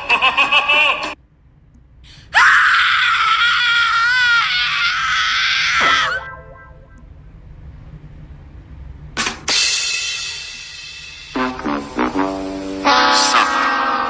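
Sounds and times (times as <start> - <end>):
loud long scream: 2.3 - 6.4, 13.0 - 14.0.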